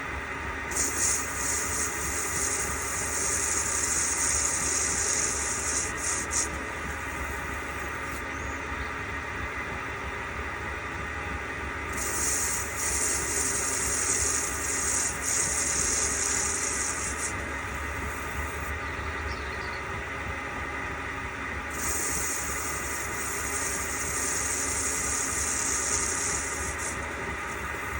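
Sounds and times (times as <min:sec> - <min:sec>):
machine tool humming: 0:00.6 - 0:08.7, 0:11.9 - 0:19.4, 0:21.6 - 0:27.9
high hiss of metal cutting: 0:00.7 - 0:08.2, 0:11.9 - 0:18.8, 0:21.7 - 0:27.9.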